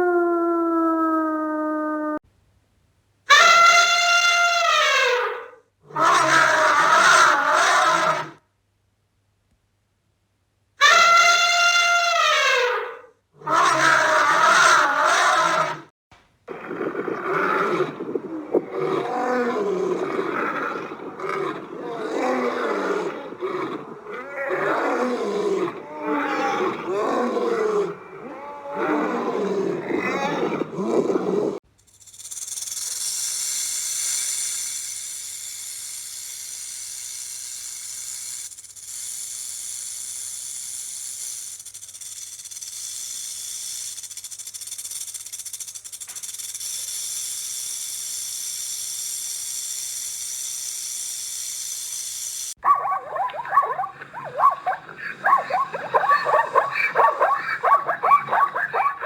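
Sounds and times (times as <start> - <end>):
large animal roaring and growling: 16.5 - 31.6, 52.8 - 59.0
steady hiss: 31.8 - 52.6
dog barking and yipping: 52.6 - 59.0.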